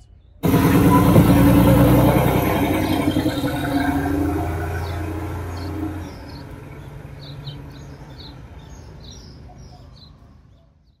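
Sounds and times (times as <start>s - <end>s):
birds chirping: 0.0s - 11.0s
car engine driving away: 0.4s - 9.2s.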